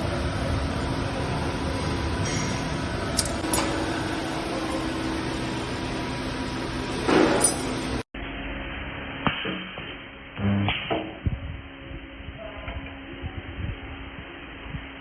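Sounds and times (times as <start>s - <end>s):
machinery humming: 0.0s - 8.6s.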